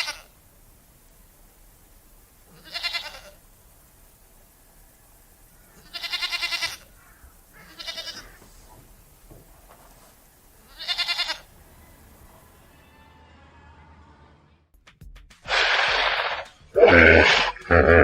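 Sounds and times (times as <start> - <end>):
goat bleating: 0.0 - 0.3, 2.5 - 3.4, 5.8 - 7.0, 7.6 - 8.4, 10.6 - 11.5, 15.5 - 18.0.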